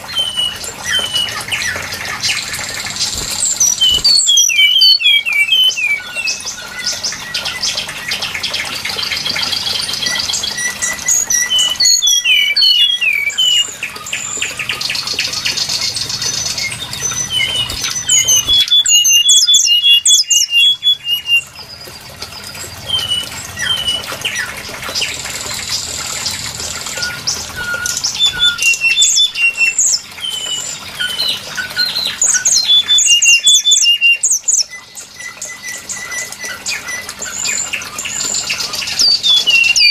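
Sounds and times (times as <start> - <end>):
bird whistled notes and chirps: 0.1 - 7.8, 10.0 - 14.4, 16.0 - 21.6, 26.9 - 39.9
bird harsh rapid chattering: 2.4 - 5.2, 16.2 - 21.0.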